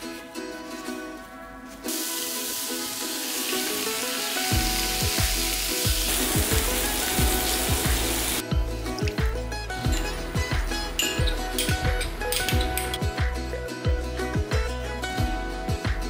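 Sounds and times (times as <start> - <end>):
background music with a beat: 0.0 - 16.0
chicken sizzling in a skillet: 1.9 - 8.4.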